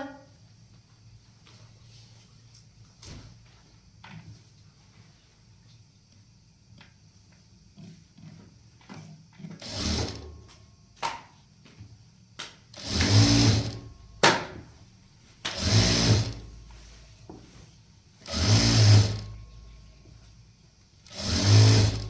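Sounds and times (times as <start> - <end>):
electric sewing machine running: 9.6 - 10.4, 12.8 - 14.0, 15.5 - 16.5, 18.2 - 19.5, 21.0 - 22.0.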